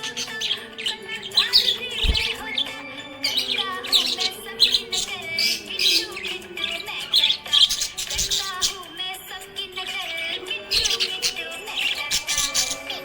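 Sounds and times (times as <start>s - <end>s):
budgerigars chirping: 0.0s - 9.0s, 9.8s - 13.0s
background music: 0.0s - 13.0s.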